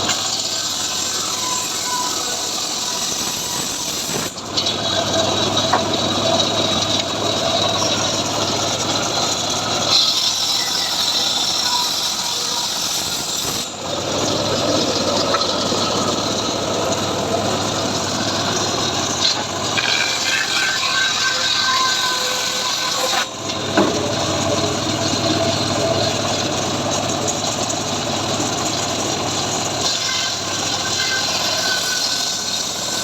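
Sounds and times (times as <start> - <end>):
engine-driven sawmill cutting wood: 0.0 - 33.0.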